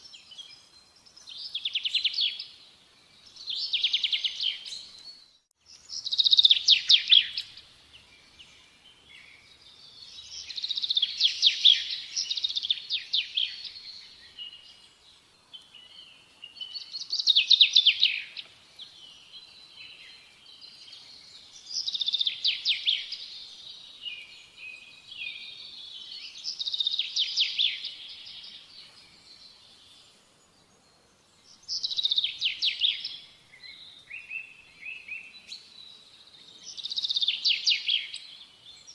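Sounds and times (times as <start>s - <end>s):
songbird trilling: 5.8s - 7.6s.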